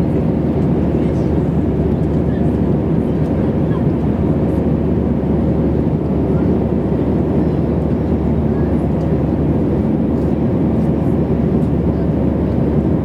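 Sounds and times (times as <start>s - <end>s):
jet engines droning in cabin: 0.0s - 13.0s.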